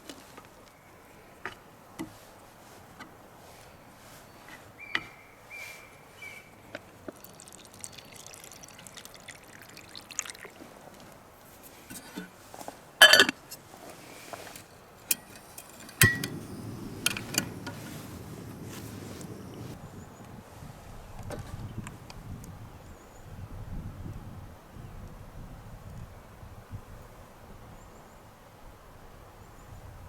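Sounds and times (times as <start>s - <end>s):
liquid being poured: 7.0s - 10.8s
handling clicks and knocks: 15.1s - 19.7s.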